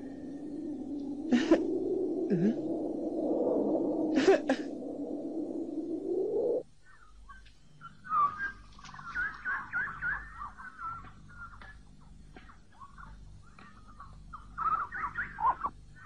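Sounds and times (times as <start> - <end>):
low droning noise: 0.0 - 6.8
birds chirping: 0.0 - 16.0.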